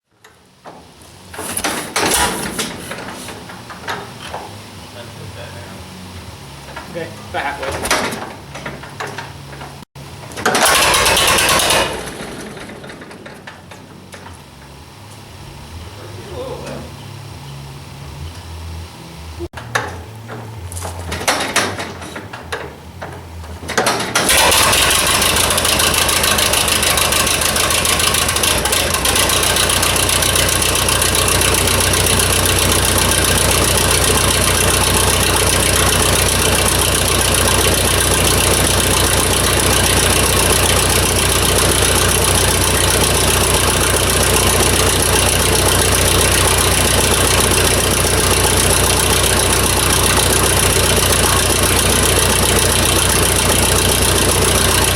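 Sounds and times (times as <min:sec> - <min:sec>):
tractor engine idling: 0:00.2 - 0:16.8, 0:19.5 - 0:54.9
tractor engine hand-cranked: 0:01.3 - 0:03.8, 0:10.4 - 0:14.4, 0:20.7 - 0:54.9.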